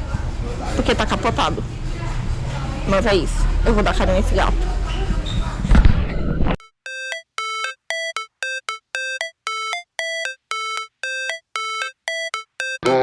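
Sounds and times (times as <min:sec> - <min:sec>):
simple electronic synth melody: 0:03.7 - 0:04.5, 0:06.6 - 0:13.0.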